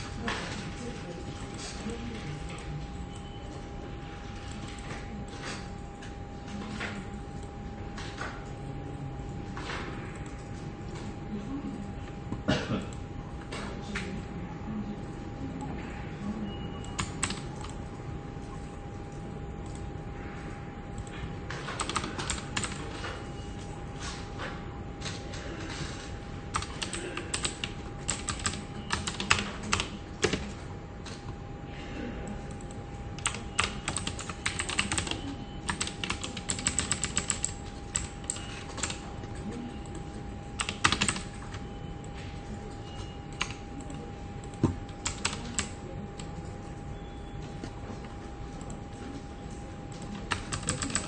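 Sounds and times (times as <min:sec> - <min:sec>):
faint steady hum: 0:00.0 - 0:51.0
keyboard typing clicks: 0:16.8 - 0:17.8, 0:21.0 - 0:23.1, 0:26.5 - 0:31.3, 0:32.5 - 0:40.0, 0:40.6 - 0:42.2, 0:43.0 - 0:46.3, 0:49.9 - 0:51.0.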